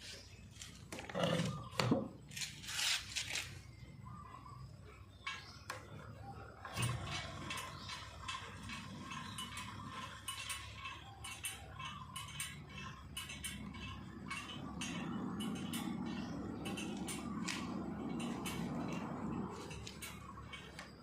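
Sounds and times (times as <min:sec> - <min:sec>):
low hum: 0:03.6 - 0:21.0
hand tools clinking on metal: 0:05.1 - 0:21.0.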